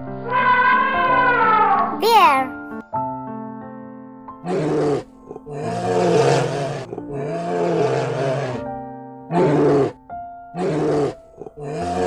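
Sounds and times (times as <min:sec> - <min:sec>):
bear roaring: 0:04.4 - 0:08.7, 0:09.3 - 0:10.0, 0:10.6 - 0:12.0.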